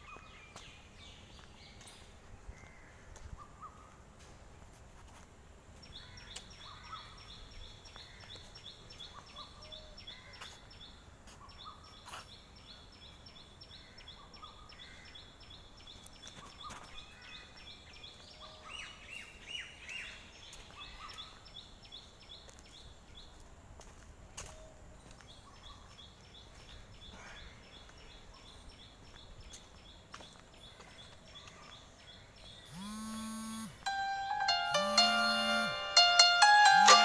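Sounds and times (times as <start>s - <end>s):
bird repeating high note: 33.9s - 37.0s.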